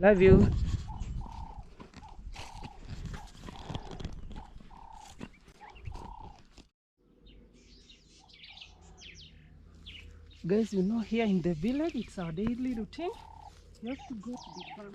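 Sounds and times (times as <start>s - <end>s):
footsteps on ground: 0.4s - 6.7s, 9.7s - 14.9s
small birds chirping: 0.7s - 14.9s.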